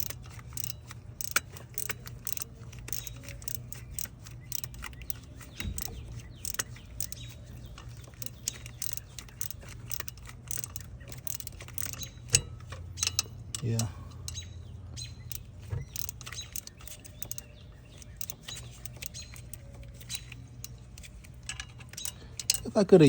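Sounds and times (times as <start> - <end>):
tool knocking against metal: 0.0 - 7.2
socket ratchet clicking: 0.0 - 23.0.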